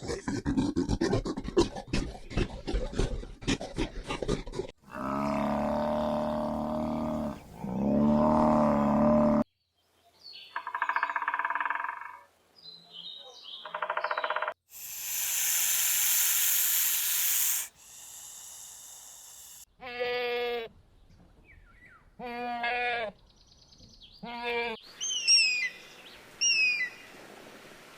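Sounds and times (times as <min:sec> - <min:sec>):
long pitched animal calls: 0:14.7 - 0:19.6
loud animal hiss: 0:14.7 - 0:19.7.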